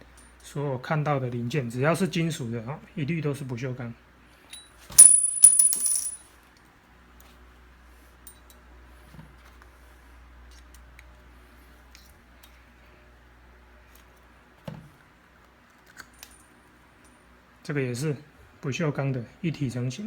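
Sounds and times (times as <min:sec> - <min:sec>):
metal parts clinking: 0:04.5 - 0:06.2
handling noise: 0:04.9 - 0:06.2.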